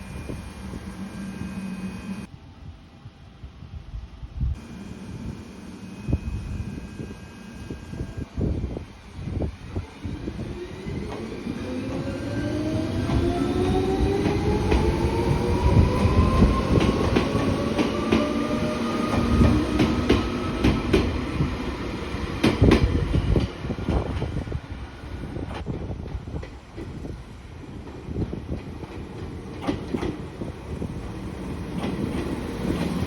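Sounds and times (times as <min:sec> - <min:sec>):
train traction motors whining: 0:00.0 - 0:02.3, 0:04.6 - 0:08.3
rumble of wheels on rail: 0:03.6 - 0:33.0
wheels clacking over rail joints: 0:27.9 - 0:30.3.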